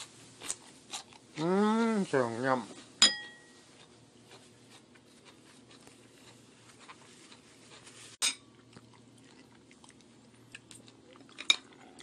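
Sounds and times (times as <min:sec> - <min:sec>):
chewing crispy chicken: 0:00.0 - 0:03.0, 0:03.6 - 0:12.0.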